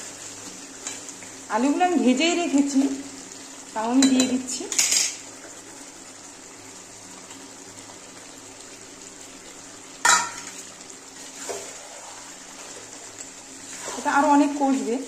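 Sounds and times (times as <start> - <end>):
food sizzling in a pan: 0.0 - 15.0
knock against pan: 10.0 - 10.5.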